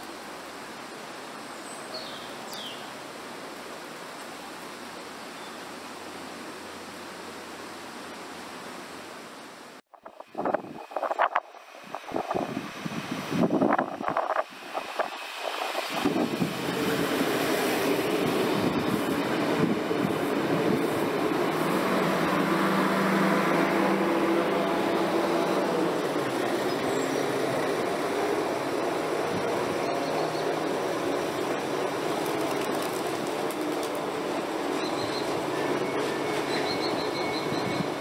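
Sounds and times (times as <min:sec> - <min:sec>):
diesel train engine drone: 0:10.4 - 0:38.0.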